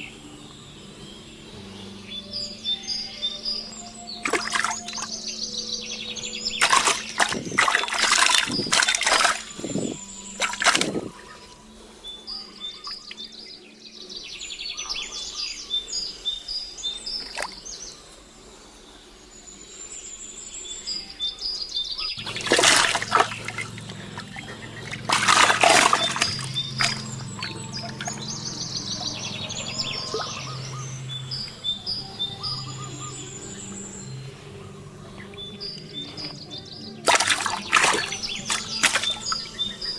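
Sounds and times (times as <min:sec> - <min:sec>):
birds chirping: 0:00.0 - 0:39.9
bursts of splashing water: 0:04.2 - 0:05.2, 0:06.6 - 0:11.1, 0:22.2 - 0:28.6, 0:37.0 - 0:39.5
low steady hum: 0:22.2 - 0:39.9.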